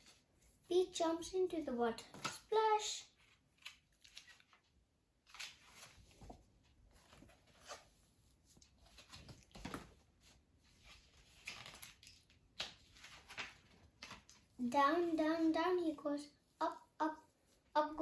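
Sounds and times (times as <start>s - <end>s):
faint rustles and handling noises: 0.0s - 17.9s.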